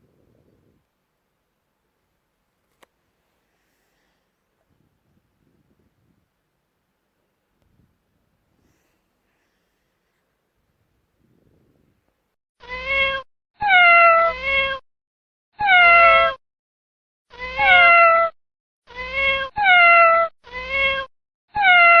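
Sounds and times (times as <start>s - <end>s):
cat meowing: 17.4s - 18.3s, 18.9s - 22.0s.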